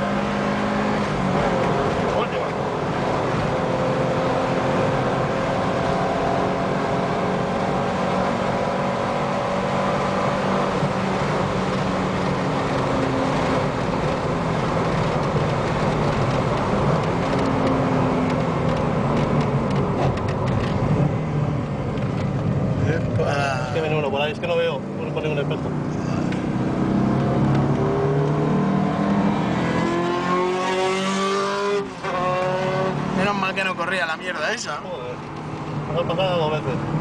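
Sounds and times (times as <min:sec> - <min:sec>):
car engine running at speed: 0:00.0 - 0:34.0.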